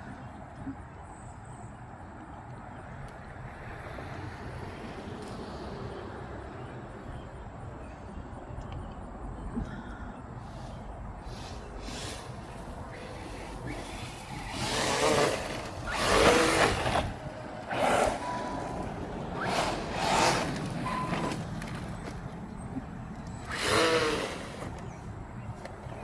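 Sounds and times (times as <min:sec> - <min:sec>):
electric motor whining: 0:11.3 - 0:26.0.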